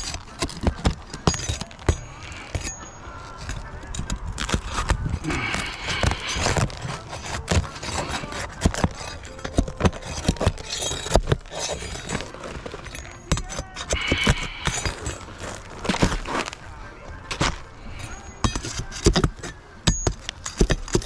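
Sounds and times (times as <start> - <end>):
metal tool prying shingles: 17.3 - 18.7.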